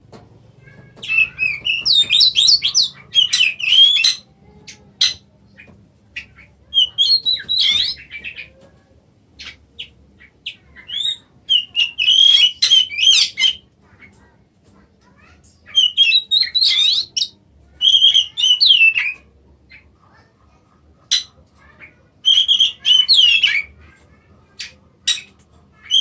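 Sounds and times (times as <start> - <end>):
bird singing whistled phrases: 1.0 - 4.3, 6.7 - 8.1, 10.8 - 13.6, 15.7 - 19.2, 22.2 - 23.7.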